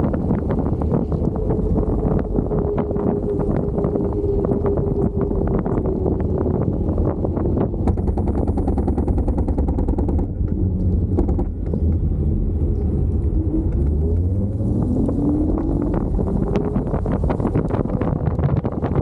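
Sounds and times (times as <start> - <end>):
fine rapid rattle: 0.0 - 13.9
tyre rumble: 0.0 - 19.0
wind rushing over microphone: 0.0 - 19.0.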